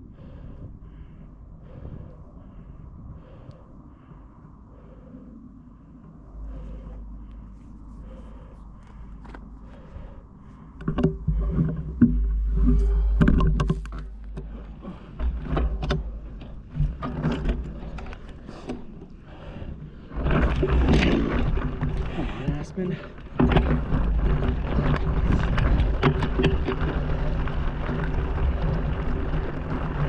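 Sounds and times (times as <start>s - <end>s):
wind rumbling on microphone: 0.0s - 30.0s
bike knocks and rattles: 10.7s - 18.9s.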